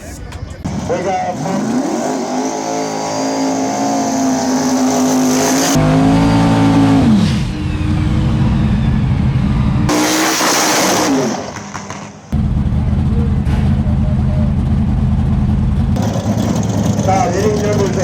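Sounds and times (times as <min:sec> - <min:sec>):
drag car engine at high revs: 0:00.6 - 0:12.3, 0:15.8 - 0:18.0.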